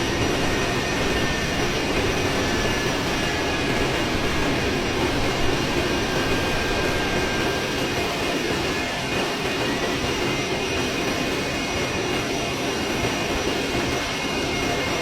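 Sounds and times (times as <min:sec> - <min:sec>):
faint high whine: 0:00.0 - 0:15.0
jet airliner rush: 0:00.0 - 0:15.0.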